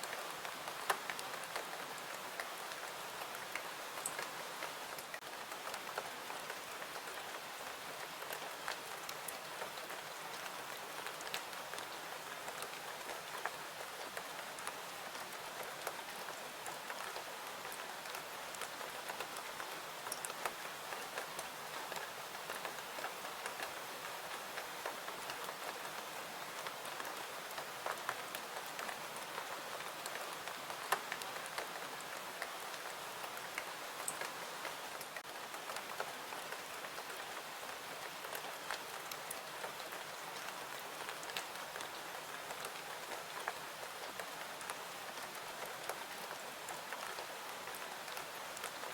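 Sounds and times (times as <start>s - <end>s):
steady rain: 0.0s - 48.9s
raindrop ticks: 32.4s - 37.4s.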